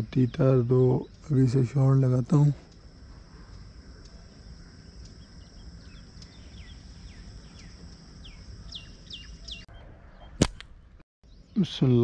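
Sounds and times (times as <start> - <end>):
birds whistling downward: 4.6 - 11.8.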